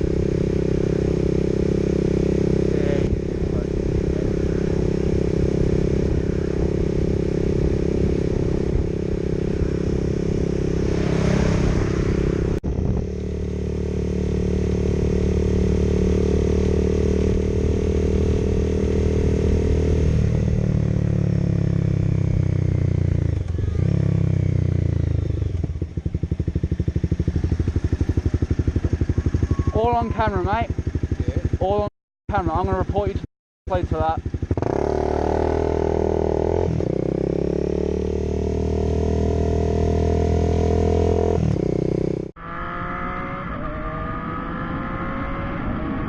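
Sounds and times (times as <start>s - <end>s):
motorcycle engine slowing to idle: 20.6s - 35.5s.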